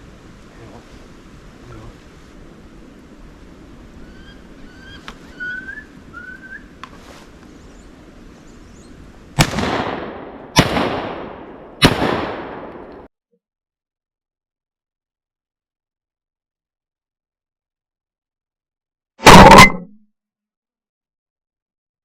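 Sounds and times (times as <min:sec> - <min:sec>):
wood ducks whistling: 0:04.0 - 0:06.8
shotgun shots: 0:09.4 - 0:13.1.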